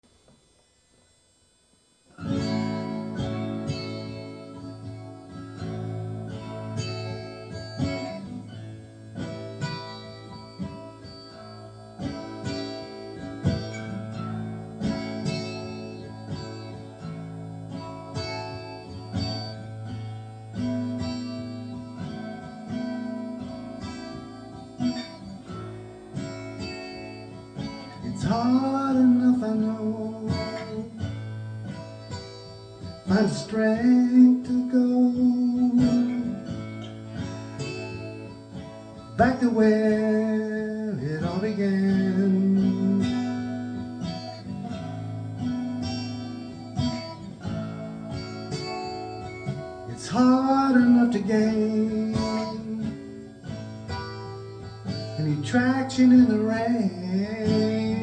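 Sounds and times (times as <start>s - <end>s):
acoustic guitar picked notes: 0.0s - 58.0s
bending guitar note: 1.2s - 58.0s.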